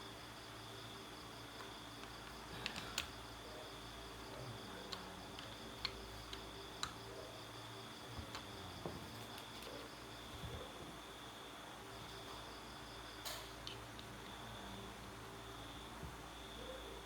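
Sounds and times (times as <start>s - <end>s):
faint high-pitched hum: 0.0s - 17.0s.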